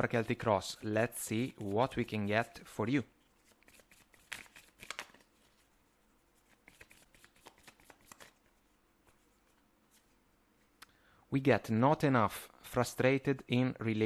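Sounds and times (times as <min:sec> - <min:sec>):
cards being shuffled: 0:03.3 - 0:05.7, 0:06.4 - 0:10.2.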